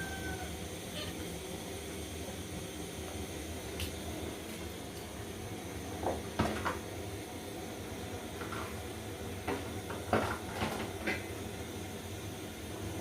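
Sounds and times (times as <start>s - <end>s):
pots and utensils clattering: 9.5s - 11.3s.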